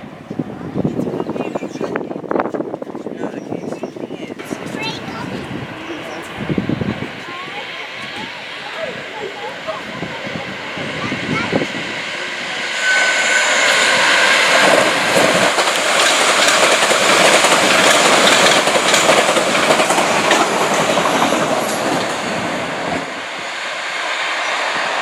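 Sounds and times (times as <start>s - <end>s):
train wheels clattering: 4.4s - 23.3s
high wheel squeal: 4.5s - 15.4s.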